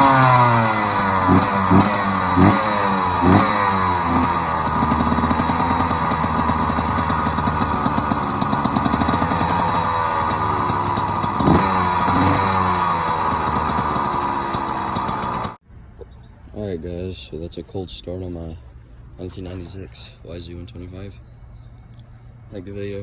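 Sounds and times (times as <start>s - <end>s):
engine throttle blips: 0.0s - 15.6s
two-stroke engine idling: 0.0s - 15.6s.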